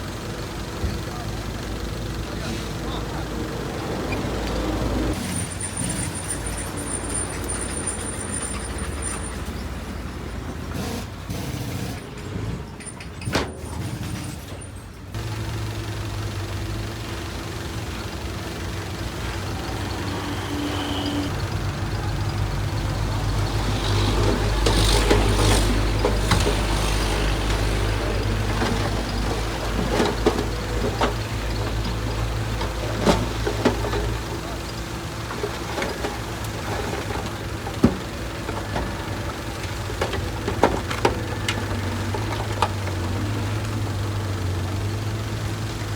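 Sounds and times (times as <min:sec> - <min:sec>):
heavy diesel engine droning: 0:00.0 - 0:45.9
knocks and clanks: 0:23.5 - 0:43.8.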